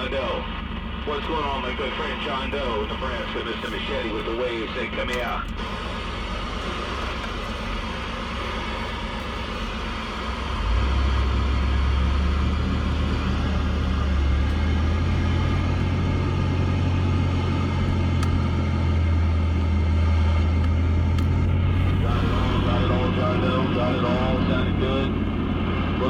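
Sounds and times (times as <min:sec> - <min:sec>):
radio static hiss: 0:00.0 - 0:10.4, 0:21.8 - 0:25.1
steady low hum: 0:00.0 - 0:26.0.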